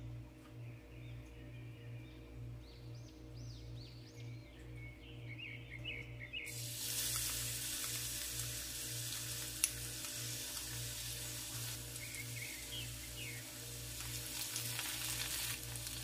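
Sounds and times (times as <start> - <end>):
food sizzling in hot oil: 6.5 - 16.0.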